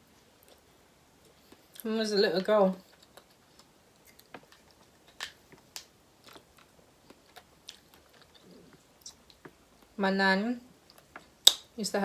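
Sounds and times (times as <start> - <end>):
chewing crab clicks and crackles: 2.8 - 10.0, 10.8 - 11.7.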